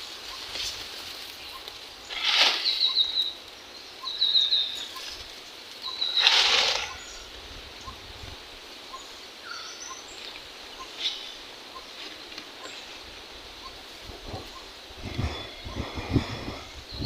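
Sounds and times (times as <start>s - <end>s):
steady background hiss: 0.0s - 17.0s
bird chirps: 1.4s - 5.2s, 5.8s - 8.0s, 8.8s - 13.0s.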